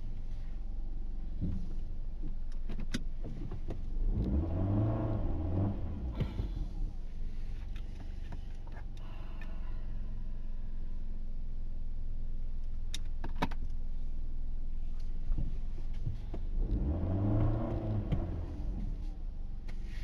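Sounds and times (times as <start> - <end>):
car engine revving: 4.0 - 7.0, 16.6 - 19.1.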